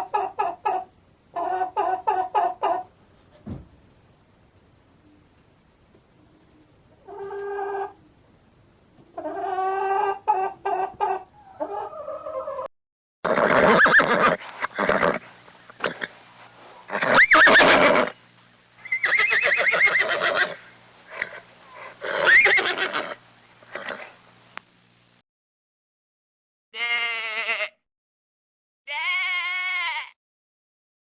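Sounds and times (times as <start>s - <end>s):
horse whinnying: 13.3s - 15.2s, 15.8s - 16.2s, 16.9s - 18.2s, 18.8s - 24.2s
low animal calls: 16.8s - 18.2s, 18.8s - 24.2s.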